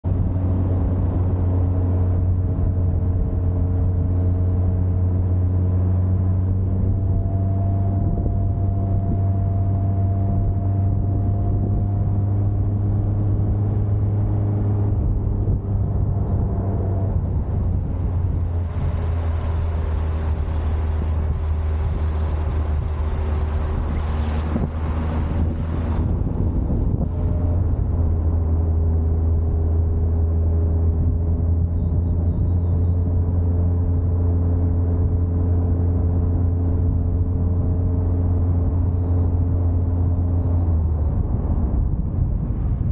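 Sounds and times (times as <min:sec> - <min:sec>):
car engine droning: 0:00.0 - 0:42.9
wind rush on microphone: 0:00.0 - 0:42.9.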